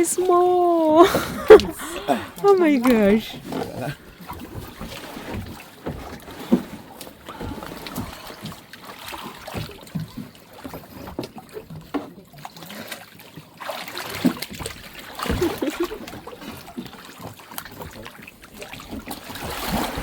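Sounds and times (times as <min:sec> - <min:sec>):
sea water sloshing and splashing: 0:00.0 - 0:20.0.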